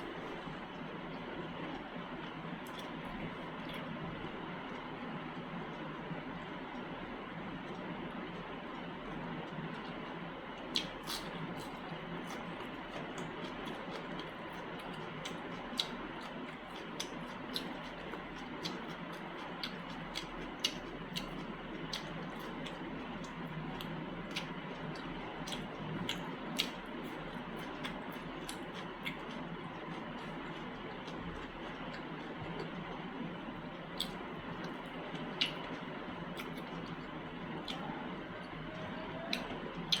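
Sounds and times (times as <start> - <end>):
chewing: 0.0 - 6.9, 7.5 - 40.0
wet mouth clicks and smacks: 39.3 - 40.0.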